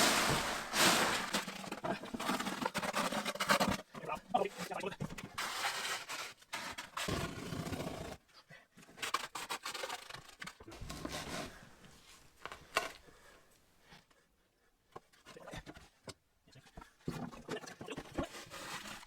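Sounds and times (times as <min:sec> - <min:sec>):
hand tool scraping wet concrete: 0:00.0 - 0:03.8.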